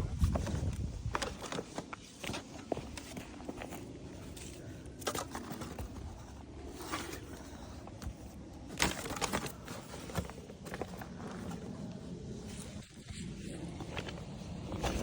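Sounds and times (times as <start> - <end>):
litter rustling and scraping: 0.2 - 11.8.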